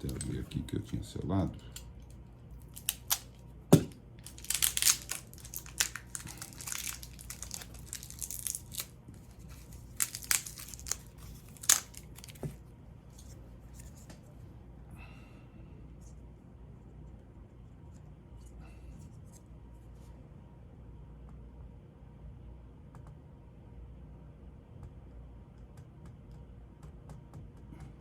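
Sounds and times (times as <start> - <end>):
plastic packet tearing and crinkling: 2.0 - 12.6.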